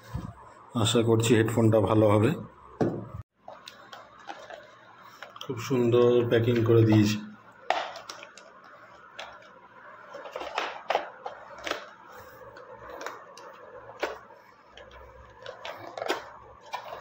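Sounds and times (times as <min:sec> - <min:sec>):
packaging clicks and taps: 0:03.5 - 0:05.5, 0:06.5 - 0:17.0.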